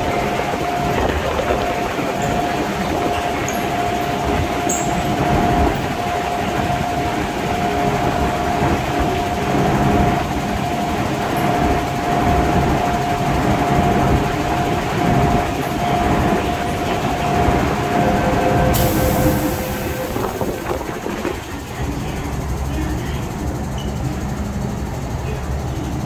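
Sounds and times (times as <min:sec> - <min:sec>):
traction motor whine: 0:00.0 - 0:21.6
wheels rumbling on rail: 0:00.0 - 0:26.0
hiss: 0:18.7 - 0:20.9.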